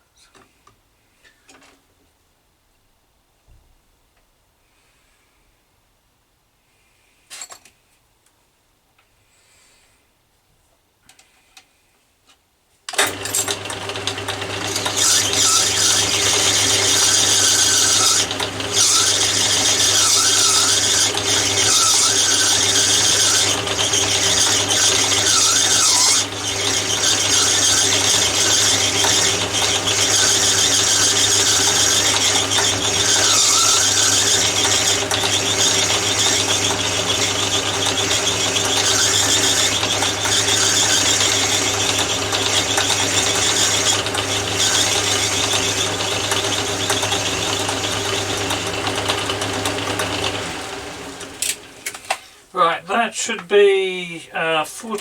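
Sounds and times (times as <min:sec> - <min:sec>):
high whine of lathe cut: 0:13.0 - 0:51.7
metal lathe turning brass: 0:13.0 - 0:52.2.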